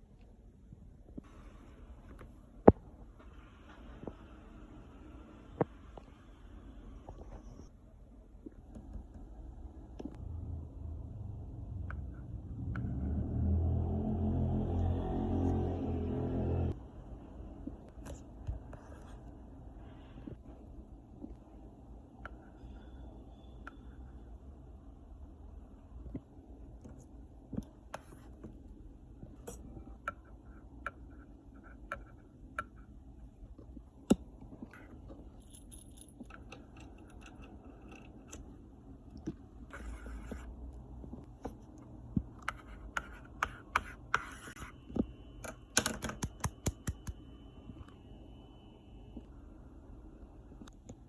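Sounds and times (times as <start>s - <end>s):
faint steady high tone: 22.4s - 24.4s, 47.2s - 50.1s
small clicks and taps: 45.4s - 47.2s.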